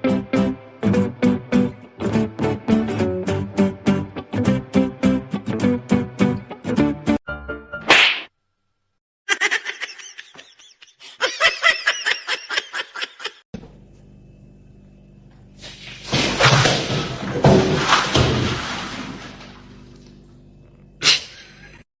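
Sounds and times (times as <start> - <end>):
person laughing: 9.3 - 13.4, 21.0 - 21.8.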